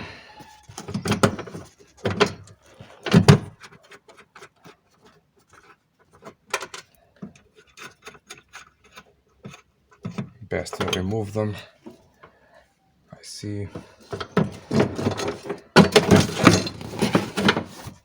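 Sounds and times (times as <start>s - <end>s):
dull knocks and clunks: 13.7s - 18.0s.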